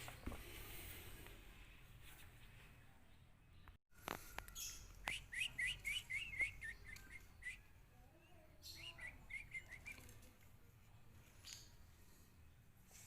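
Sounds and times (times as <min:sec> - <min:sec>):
bulbul chirping: 0:04.5 - 0:07.7.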